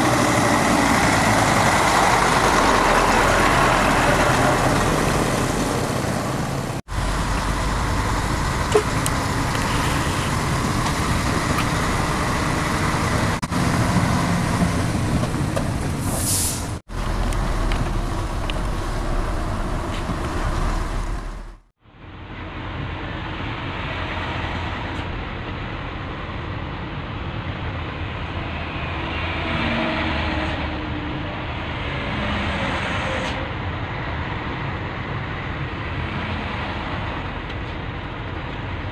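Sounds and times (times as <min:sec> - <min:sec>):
heavy truck engine running: 0:00.0 - 0:21.7
road noise: 0:00.0 - 0:38.9.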